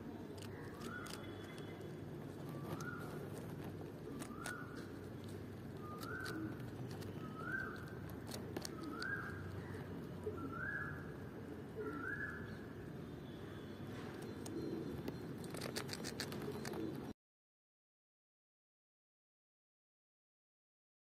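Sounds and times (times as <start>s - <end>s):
squirrel nibbling clicks: 0.2s - 9.9s, 14.3s - 16.8s.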